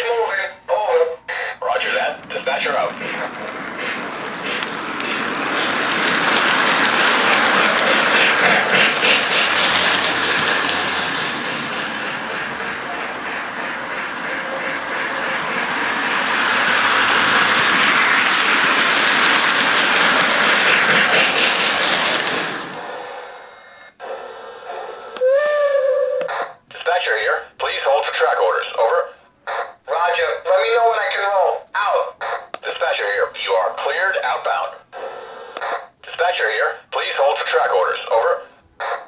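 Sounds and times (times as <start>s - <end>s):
model train wheels rattling on rail: 1.3s - 23.3s.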